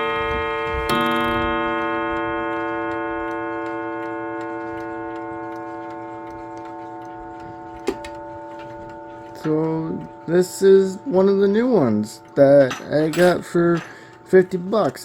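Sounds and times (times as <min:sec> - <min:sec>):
clock striking gong: 0:00.0 - 0:15.0
clock ticking faintly: 0:00.9 - 0:15.0.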